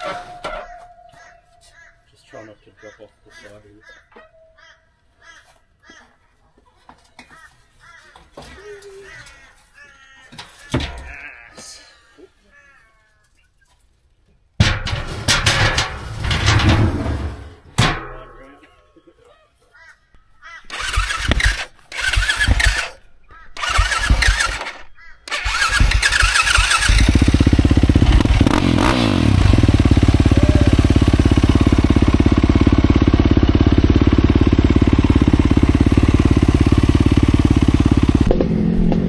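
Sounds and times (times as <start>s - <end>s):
dirt bike engine starting and idling: 20.7s - 23.0s, 23.6s - 39.0s.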